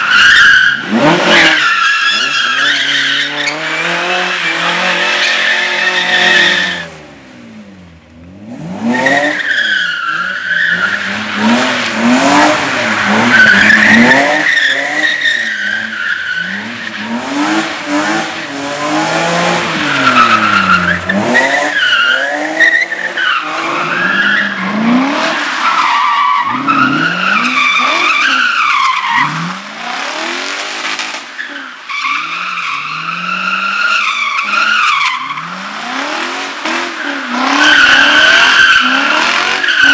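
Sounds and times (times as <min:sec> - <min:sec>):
car engine revving: 0:00.8 - 0:26.0, 0:26.6 - 0:31.3, 0:32.2 - 0:39.9
tyres squealing: 0:09.0 - 0:17.2, 0:19.5 - 0:24.6.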